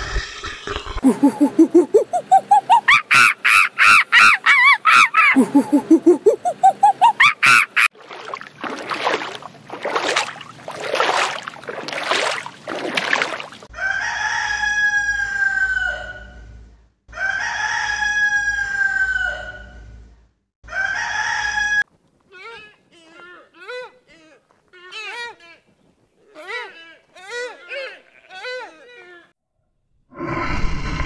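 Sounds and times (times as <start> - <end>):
peacock calling: 1.6 - 7.9.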